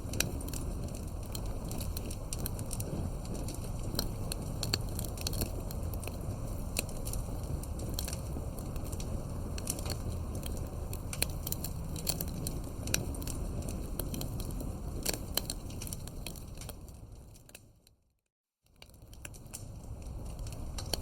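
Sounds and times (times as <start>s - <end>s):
campfire crackling and popping: 0.0s - 17.8s, 18.7s - 21.0s.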